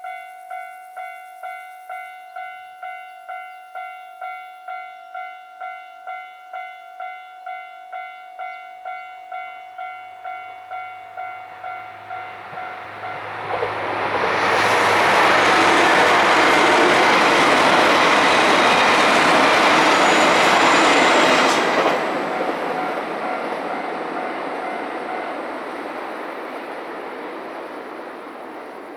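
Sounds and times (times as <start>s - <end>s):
level crossing warning bell: 0.0s - 28.0s
diesel train passing: 7.0s - 28.9s.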